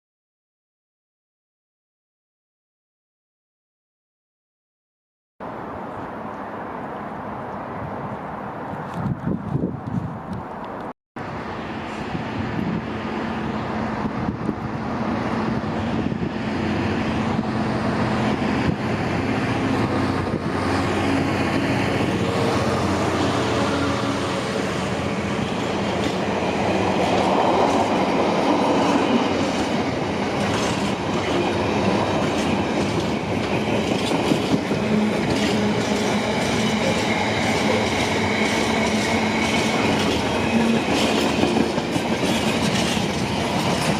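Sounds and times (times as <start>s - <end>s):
freight train rumbling past: 5.4s - 43.9s
wheels clattering over rail joints: 29.5s - 43.9s.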